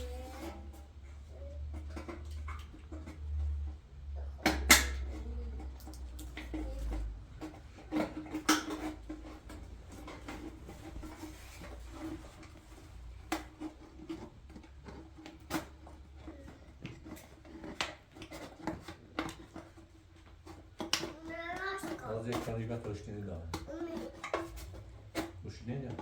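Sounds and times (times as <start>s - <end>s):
tools knocking and clicking: 4.4s - 12.6s.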